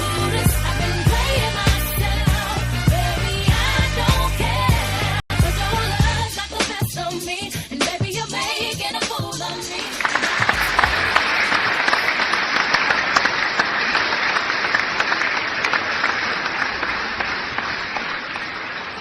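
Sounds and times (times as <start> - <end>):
audience applauding: 9.7 - 19.0.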